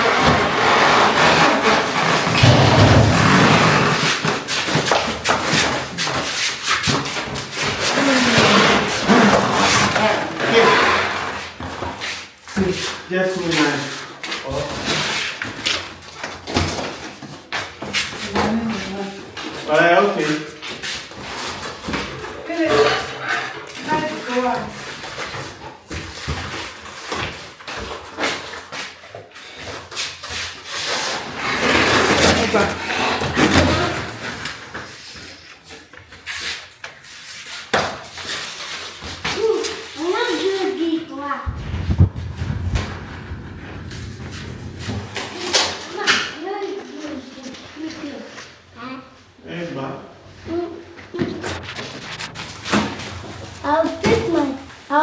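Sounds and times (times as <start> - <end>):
boxed washing machine being moved: 31.6 - 34.4
boxed appliance rubbing rumble: 41.5 - 46.0, 51.2 - 54.8.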